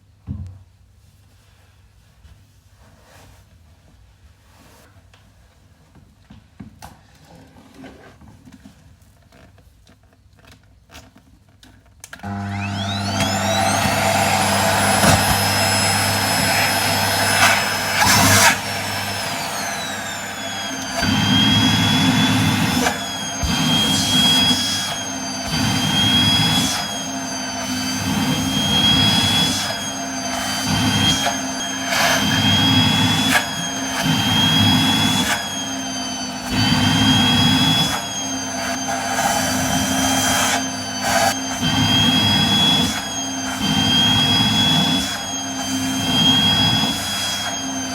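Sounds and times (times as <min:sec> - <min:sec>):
vacuum cleaner motor whining: 0:12.1 - 0:47.9.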